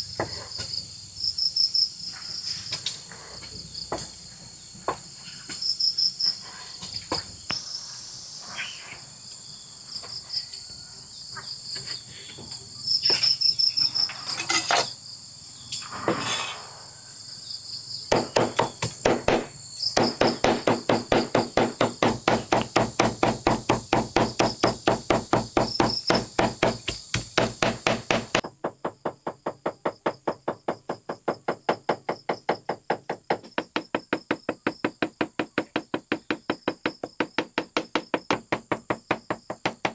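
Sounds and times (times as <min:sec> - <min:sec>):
insects chirring: 0:16.8 - 0:28.5
rapid sharp knocking: 0:18.1 - 0:28.4.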